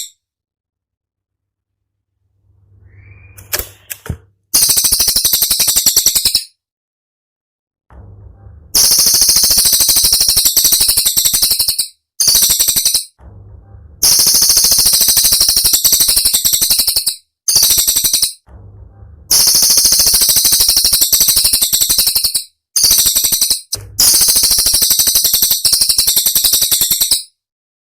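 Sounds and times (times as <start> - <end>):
bird trilling: 2.7 - 3.9.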